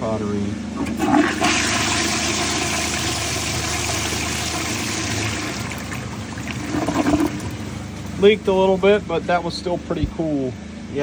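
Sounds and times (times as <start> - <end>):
toilet flushing: 0.8 - 8.2.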